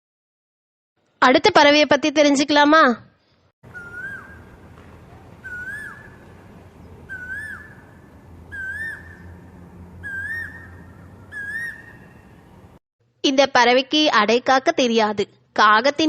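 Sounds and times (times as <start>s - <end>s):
bird whistled calls: 3.7s - 9.4s, 10.0s - 12.4s
faint low hum: 3.7s - 12.8s.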